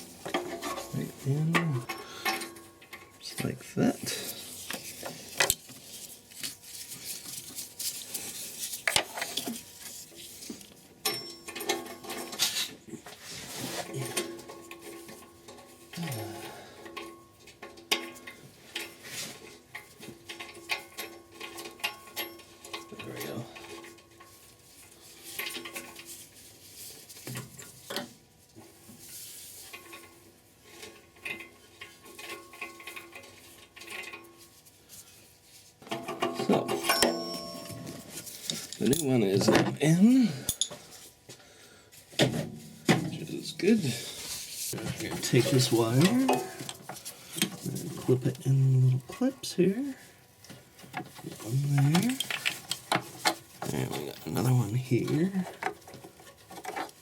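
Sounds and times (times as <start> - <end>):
metal tools clinking and scraping: 0.0 - 26.4, 35.8 - 41.2, 43.1 - 57.0
hand tools clinking on metal: 11.0 - 12.4, 35.9 - 40.9
short ringing tones: 36.8 - 38.1.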